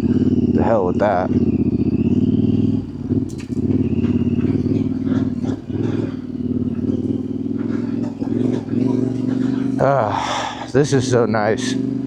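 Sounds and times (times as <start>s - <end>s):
motorcycle engine revving: 0.0s - 12.0s
motorcycle knocking over dirt: 1.2s - 9.9s.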